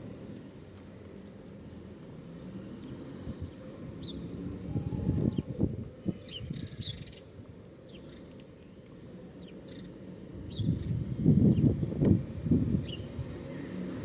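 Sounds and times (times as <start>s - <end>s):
small birds chirping: 2.8s - 11.9s, 12.7s - 13.8s.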